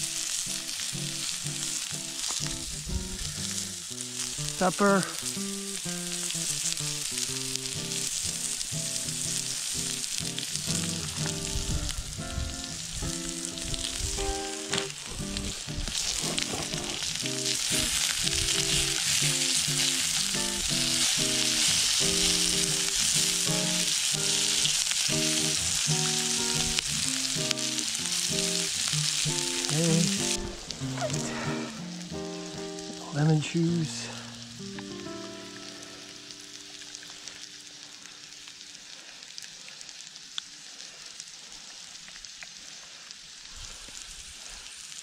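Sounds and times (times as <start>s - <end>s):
potatoes sizzling in hot oil: 0.0s - 45.0s
background music: 25.2s - 36.6s.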